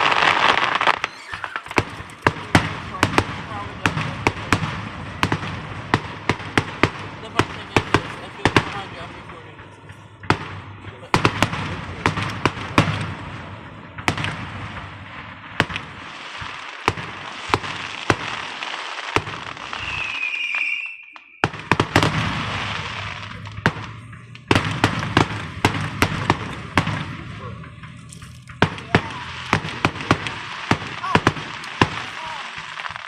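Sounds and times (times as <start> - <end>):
firework whistle: 0.0 - 2.1, 19.1 - 25.4, 28.1 - 30.3
fireworks cracking and popping: 0.0 - 33.0
fireworks crackling: 0.0 - 33.0.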